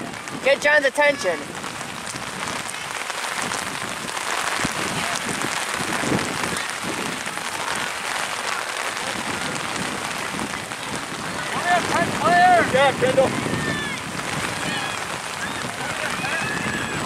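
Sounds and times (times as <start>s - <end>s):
faint voices: 0.0s - 17.0s
steady rain falling: 0.0s - 17.0s.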